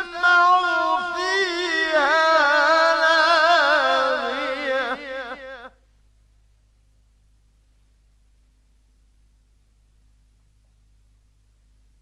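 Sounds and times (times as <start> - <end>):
man chanting recitation: 0.0 - 5.8.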